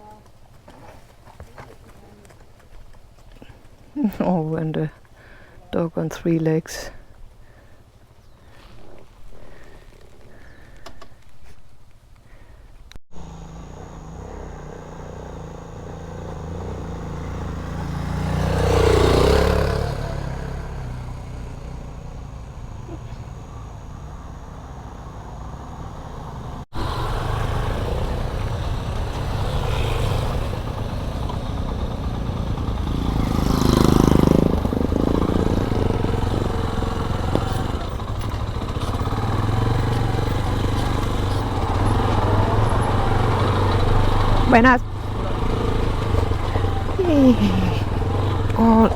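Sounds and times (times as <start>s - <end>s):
motorcycle engine running: 13.1s - 48.9s.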